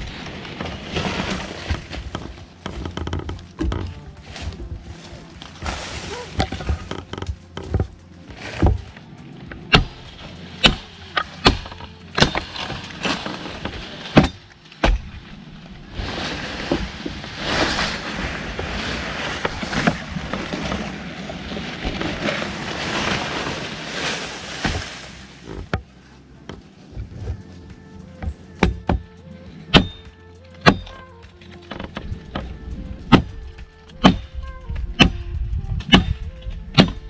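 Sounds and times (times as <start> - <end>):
blade chopping tree limb: 0.0 - 4.6, 5.4 - 8.9, 9.7 - 15.3, 16.0 - 25.9, 28.2 - 29.1, 29.7 - 31.0, 33.1 - 33.3, 33.9 - 34.3, 35.0 - 37.0
leaves and branches rustling: 0.0 - 37.0.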